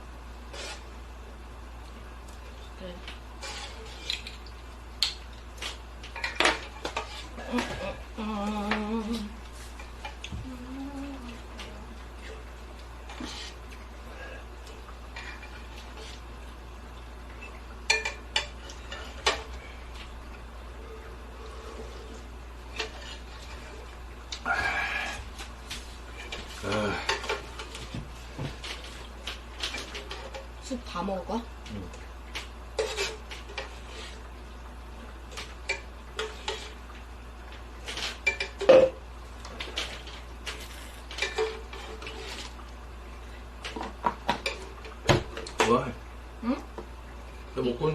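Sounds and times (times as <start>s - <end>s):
utensils clinking on dishes: 17.4s - 19.6s, 26.2s - 27.8s, 37.9s - 39.0s, 39.6s - 42.5s.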